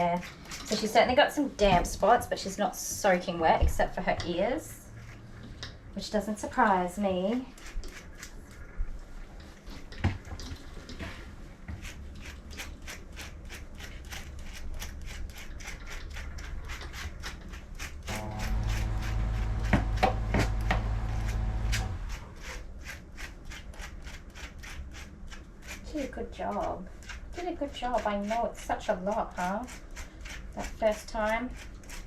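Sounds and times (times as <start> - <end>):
steady machine hum: 18.1 - 22.4.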